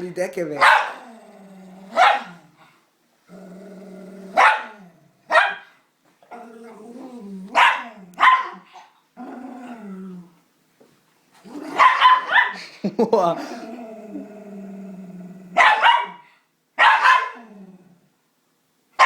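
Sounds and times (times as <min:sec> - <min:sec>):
dog barking: 0:00.6 - 0:01.0, 0:02.0 - 0:02.4, 0:04.4 - 0:04.7, 0:05.3 - 0:05.7, 0:07.6 - 0:08.9, 0:11.7 - 0:12.6, 0:15.6 - 0:17.4
dog growling: 0:00.6 - 0:05.2, 0:06.3 - 0:08.6, 0:09.2 - 0:10.4, 0:11.4 - 0:12.0, 0:13.4 - 0:15.6, 0:17.2 - 0:18.1.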